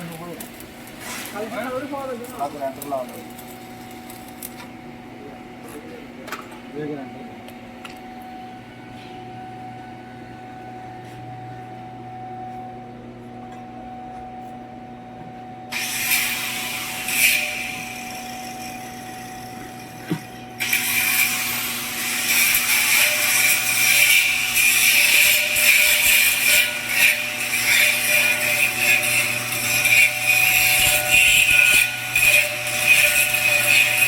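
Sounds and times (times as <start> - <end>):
welding arc crackling and hissing: 0.0 - 4.6, 15.8 - 34.0
arc welder humming: 0.0 - 34.0.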